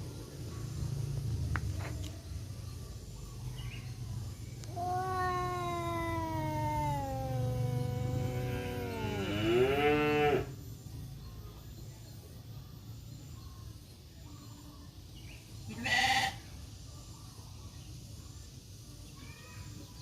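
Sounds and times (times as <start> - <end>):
cat yowling: 4.7 - 9.1.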